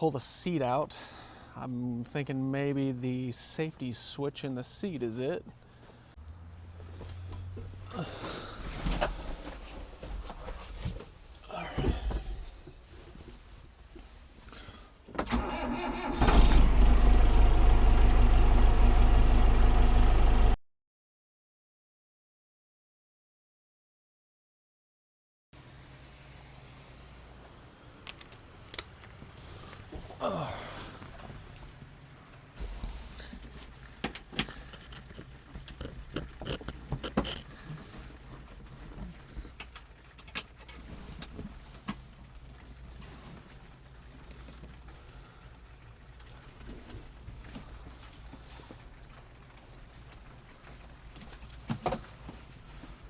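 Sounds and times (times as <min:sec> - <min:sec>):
tractor starter cranking: 0:15.2 - 0:17.5.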